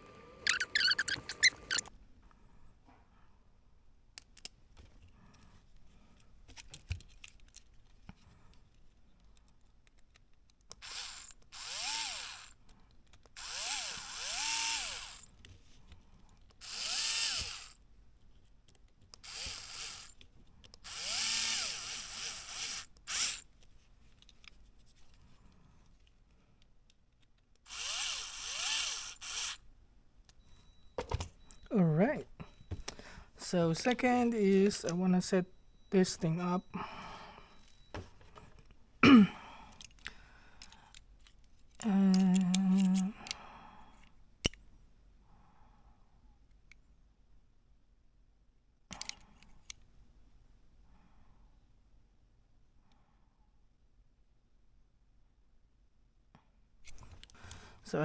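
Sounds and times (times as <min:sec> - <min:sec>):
rotary tool grinding: 0:00.0 - 0:01.9, 0:10.7 - 0:12.6, 0:13.2 - 0:15.3, 0:16.6 - 0:17.8, 0:19.2 - 0:23.5, 0:27.7 - 0:29.6, 0:40.6 - 0:43.4
faint handling clicks: 0:39.7 - 0:44.6.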